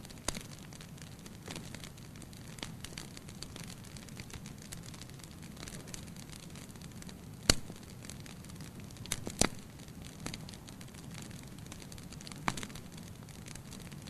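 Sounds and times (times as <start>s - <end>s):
fire crackling in fireplace: 0.0s - 14.0s
loud pop from fire: 7.4s - 7.9s.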